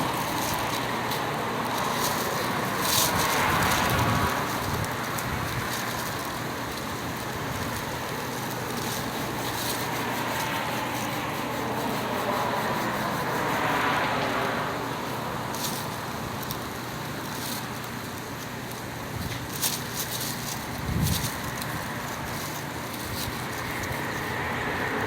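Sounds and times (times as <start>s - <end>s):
vehicle passing: 0.0s - 6.2s, 8.8s - 16.2s, 22.3s - 25.0s
background traffic noise: 0.0s - 25.0s.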